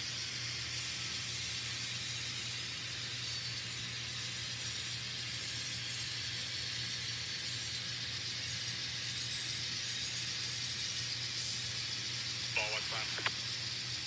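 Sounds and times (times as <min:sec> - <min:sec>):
model trains running on track: 0:00.1 - 0:14.0
constant low hum: 0:12.4 - 0:13.5.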